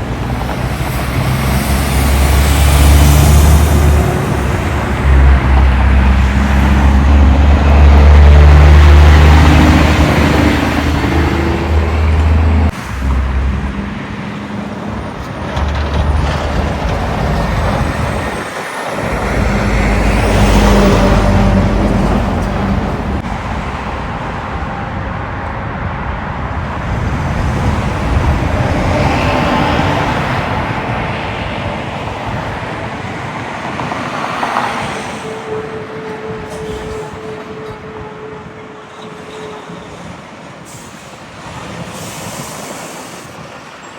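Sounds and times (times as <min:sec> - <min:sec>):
trucks and cars passing: 0:00.0 - 0:43.9.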